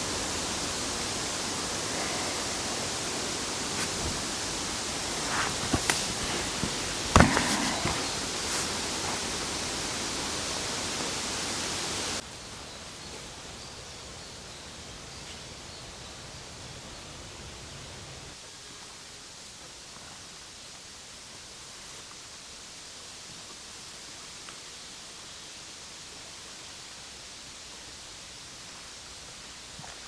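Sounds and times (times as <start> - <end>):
wind or water noise: 0.0 - 18.3
sharp knocks: 3.8 - 8.9.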